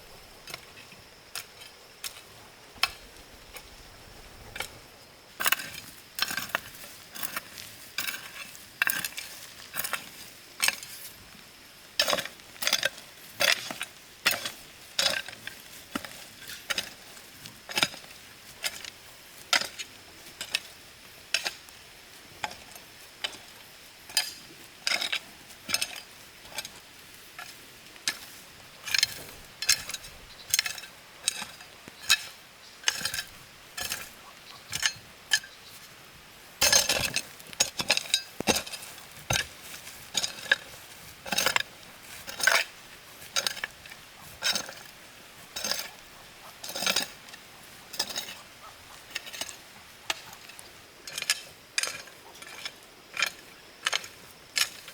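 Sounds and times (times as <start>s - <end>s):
hand tool striking soil: 5.4s - 11.0s, 12.0s - 17.1s, 19.5s - 21.8s, 27.4s - 35.5s, 36.6s - 54.9s.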